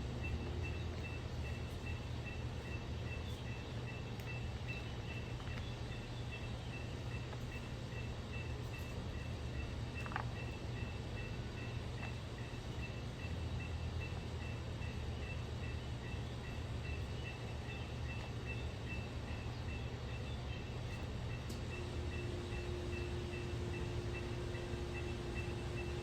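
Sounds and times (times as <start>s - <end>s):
high pulsing tone: 21.6s - 26.0s.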